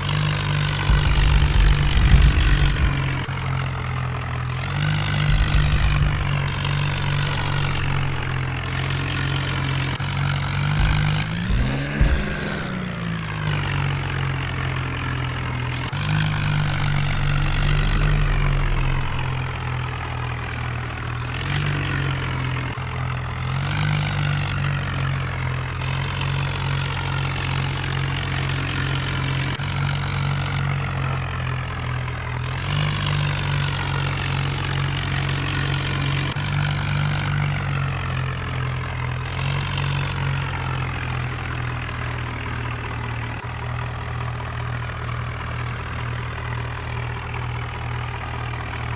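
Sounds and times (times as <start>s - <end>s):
tractor engine running: 0.0s - 48.9s
bursts of hiss: 0.8s - 3.9s, 4.5s - 9.7s, 10.6s - 13.1s, 15.7s - 19.7s.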